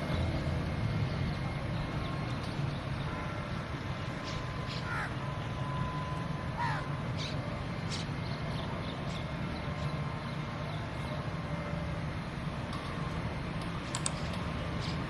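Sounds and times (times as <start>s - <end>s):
bird calls: 2.0s - 5.6s, 6.6s - 10.4s.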